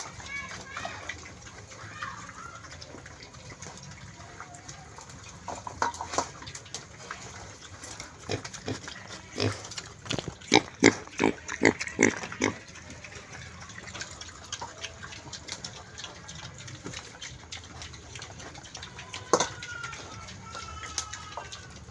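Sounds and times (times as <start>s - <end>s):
pig grunting: 6.6s - 21.9s.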